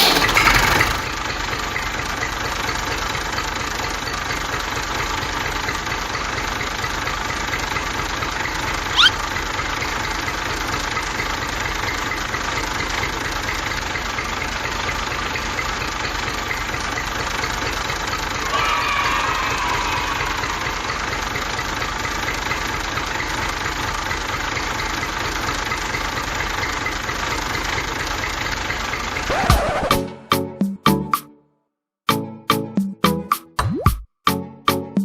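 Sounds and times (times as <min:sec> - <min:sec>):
toy tractor engine running: 0:00.0 - 0:29.6
rising squeak: 0:08.9 - 0:09.2, 0:18.4 - 0:21.9.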